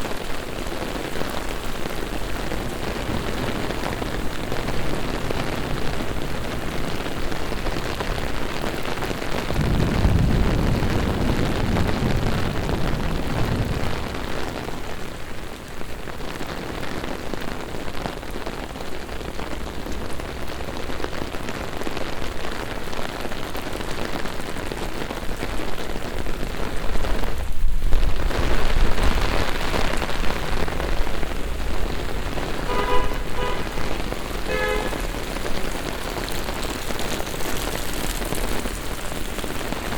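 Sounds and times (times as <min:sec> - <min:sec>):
heavy rain on street: 0:00.0 - 0:39.9
low rumble: 0:26.6 - 0:36.4.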